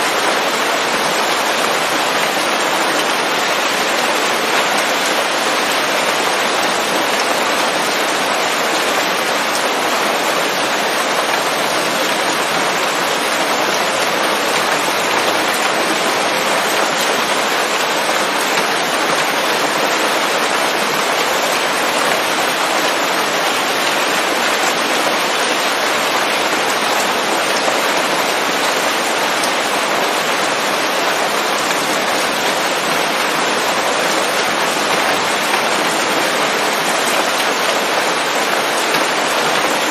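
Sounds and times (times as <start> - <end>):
rain falling on leaves: 0.0 - 39.9.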